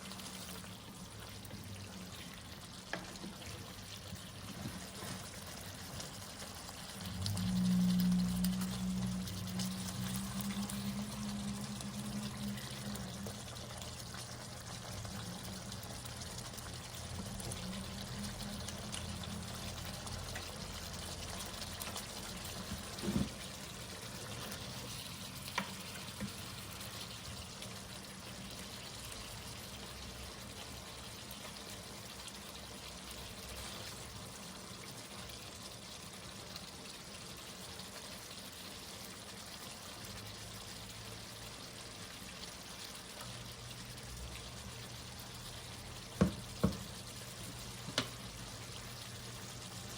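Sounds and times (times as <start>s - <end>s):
low hum: 7.0s - 13.8s
thump: 46.2s - 46.8s.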